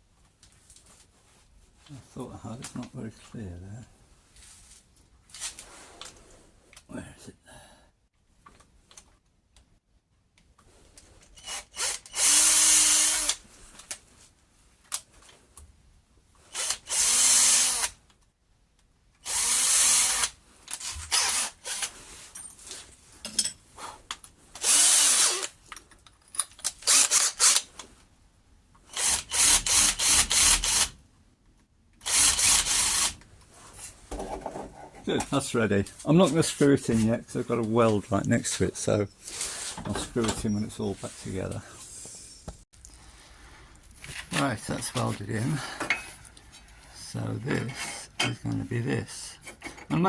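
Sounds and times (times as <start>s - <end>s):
electric drill boring into wood: 11.4s - 13.4s, 16.5s - 18.0s, 19.2s - 21.9s, 24.6s - 25.6s, 26.8s - 27.7s, 28.9s - 31.0s, 32.0s - 33.2s.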